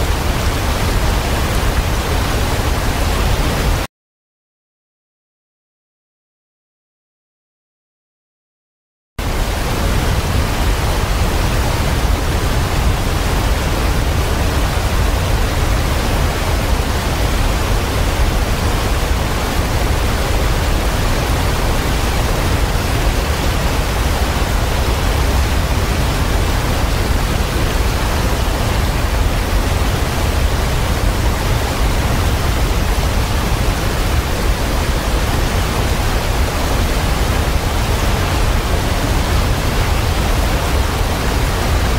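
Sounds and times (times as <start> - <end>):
waterfall roaring: 0.0 - 3.9, 9.2 - 41.9.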